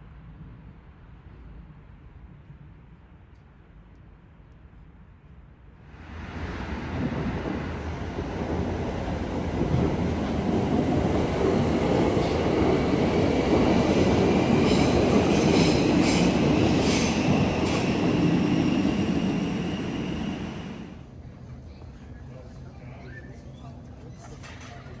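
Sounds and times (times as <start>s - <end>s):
train running on rails: 5.9s - 22.6s.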